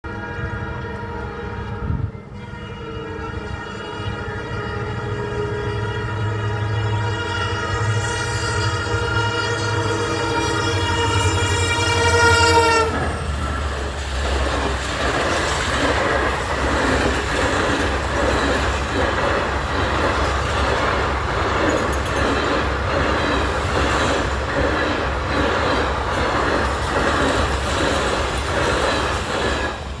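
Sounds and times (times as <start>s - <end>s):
train horn: 0.0s - 13.6s
train passing rumble: 0.0s - 30.0s
wheels clattering over rail joints: 10.3s - 30.0s.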